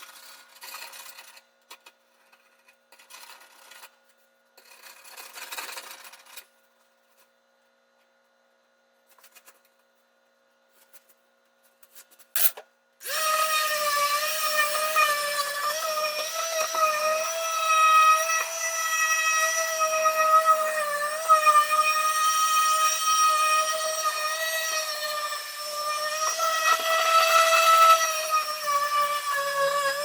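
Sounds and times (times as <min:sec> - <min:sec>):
electric power tool whining: 0:13.0 - 0:30.0.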